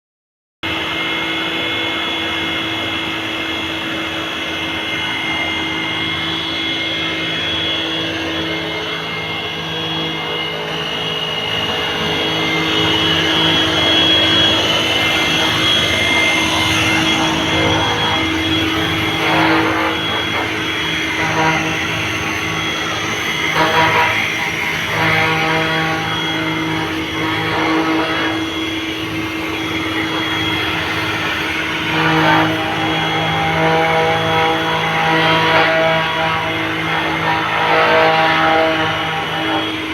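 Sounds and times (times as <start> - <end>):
machinery drone with high whine: 0.6 - 39.9.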